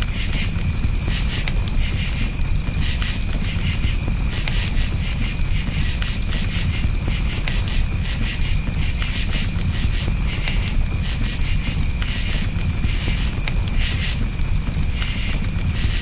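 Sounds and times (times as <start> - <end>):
campfire crackling and popping: 0.0 - 16.0
crickets chirping: 0.0 - 16.0
low rumble of fire: 0.0 - 16.0.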